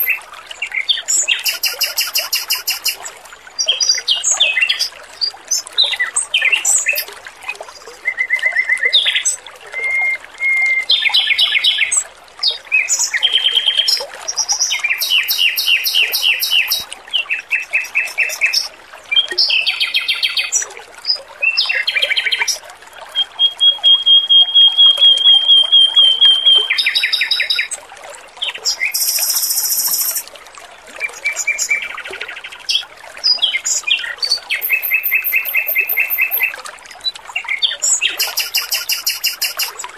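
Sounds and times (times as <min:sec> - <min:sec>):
running water trickling: 0:00.0 - 0:39.9
bird singing trills: 0:01.3 - 0:03.0, 0:14.9 - 0:18.7, 0:23.1 - 0:27.8, 0:28.8 - 0:30.2, 0:34.6 - 0:36.5, 0:38.2 - 0:39.8.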